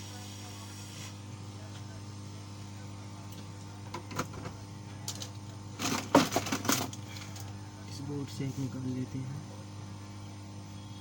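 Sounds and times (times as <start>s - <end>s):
electrical hum: 0.0s - 11.0s
small tools and parts clattering: 5.1s - 7.5s.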